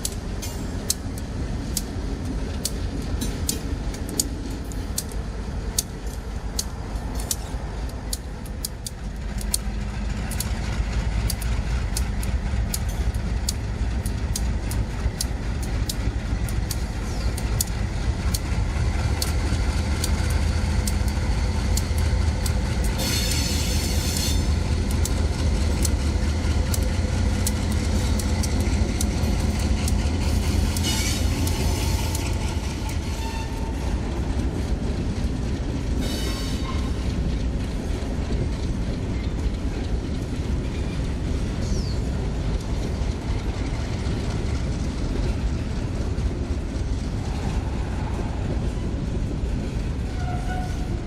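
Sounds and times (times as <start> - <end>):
freight train rumbling: 0.0 - 51.0
wheels clicking over rail joints: 0.0 - 51.0
high wheel squeal: 30.5 - 32.3.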